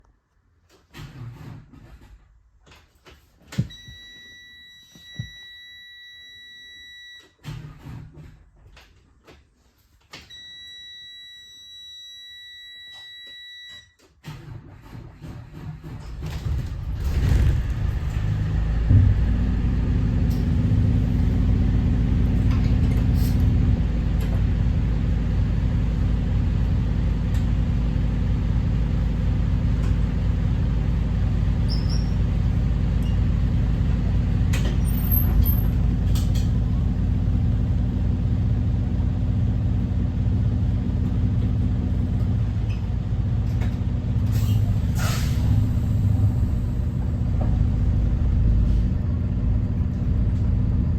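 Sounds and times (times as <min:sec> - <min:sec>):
bus diesel engine rumbling: 0:14.7 - 0:50.9.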